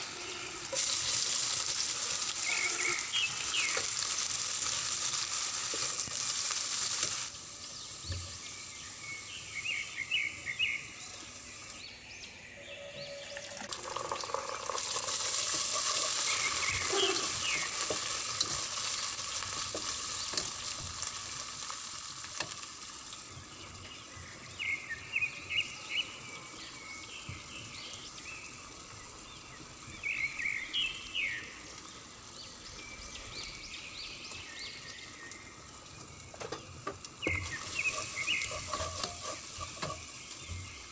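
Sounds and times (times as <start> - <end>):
stirring and scraping a pan: 0.0 - 7.4, 13.9 - 22.8, 36.5 - 40.9
spices sizzling in hot oil: 0.0 - 40.9.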